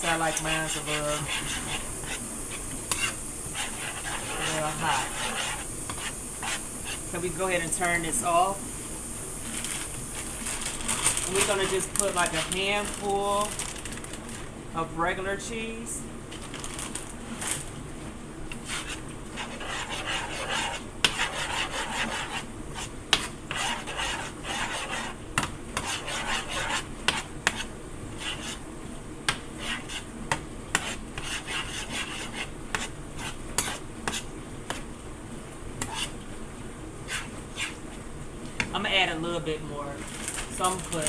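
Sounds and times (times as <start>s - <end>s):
spoon stirring thick dip: 0.0s - 8.2s, 9.5s - 13.8s, 18.5s - 25.2s, 25.8s - 28.6s, 30.8s - 34.9s, 35.8s - 36.2s, 37.0s - 37.9s.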